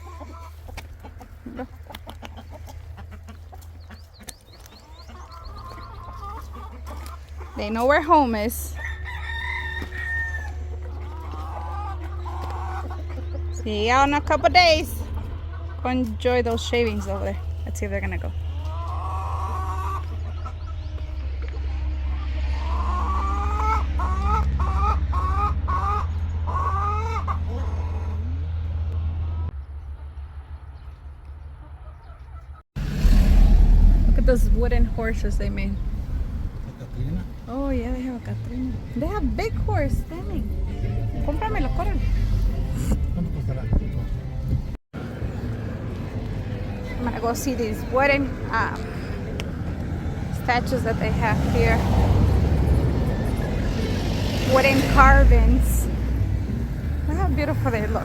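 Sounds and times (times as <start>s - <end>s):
hens clucking: 0.0s - 28.7s, 31.4s - 32.6s
low hum: 32.8s - 47.0s.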